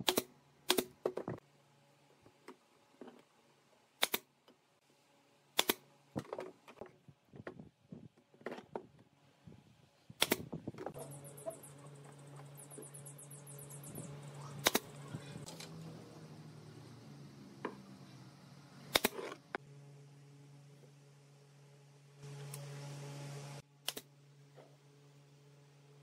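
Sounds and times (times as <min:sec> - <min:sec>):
nail gun snaps: 0:00.0 - 0:01.0, 0:04.0 - 0:04.3, 0:05.6 - 0:05.8, 0:10.2 - 0:10.5, 0:14.6 - 0:14.9, 0:18.9 - 0:19.2, 0:23.8 - 0:24.1
steady low hum: 0:09.0 - 0:26.0.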